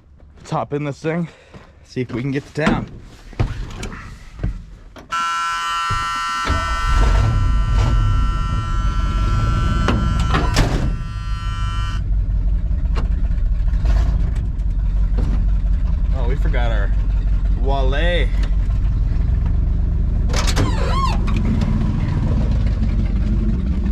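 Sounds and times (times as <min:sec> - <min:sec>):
knocks and clicks climbing into cab: 0:02.6 - 0:05.2
truck engine starting and running: 0:02.8 - 0:23.9
dashboard warning buzzer: 0:05.1 - 0:12.0.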